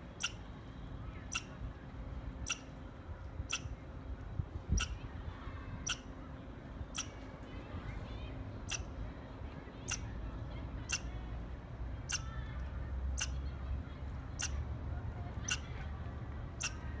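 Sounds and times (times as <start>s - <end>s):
squirrel chirping: 0.2s - 0.4s, 1.3s - 1.6s, 2.4s - 2.7s, 3.5s - 3.7s, 4.8s - 5.0s, 5.8s - 6.1s, 12.1s - 12.3s, 13.2s - 13.4s.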